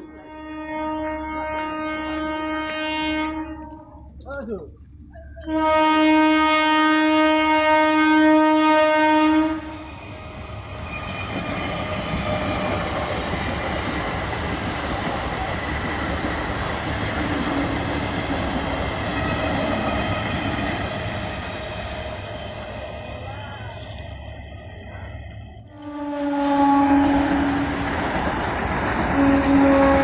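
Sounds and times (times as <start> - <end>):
train horn blast: 0.0 - 4.0, 5.4 - 9.9, 25.7 - 27.9, 29.1 - 30.0
train rumbling past: 0.0 - 30.0.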